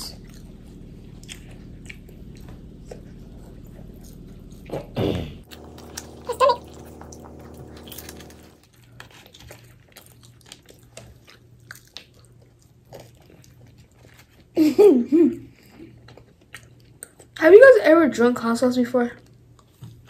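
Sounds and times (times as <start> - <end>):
steady low hum: 0.0 - 8.7
chewing and biting food: 0.0 - 14.6, 15.5 - 17.4, 19.2 - 20.0.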